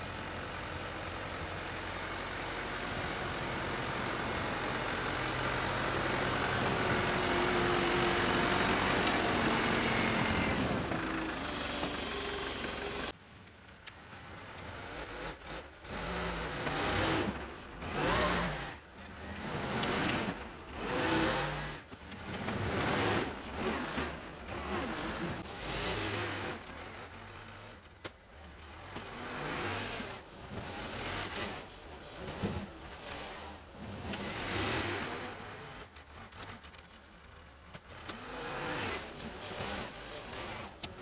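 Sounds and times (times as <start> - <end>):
diesel engine running: 0.0 - 13.1.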